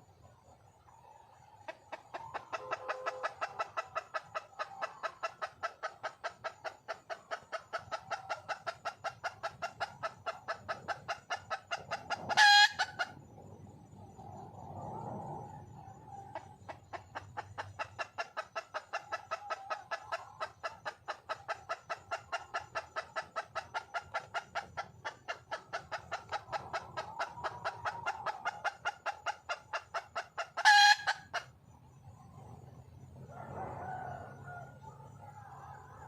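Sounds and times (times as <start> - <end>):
hen clucking rapidly: 1.0 - 13.3, 16.1 - 32.2.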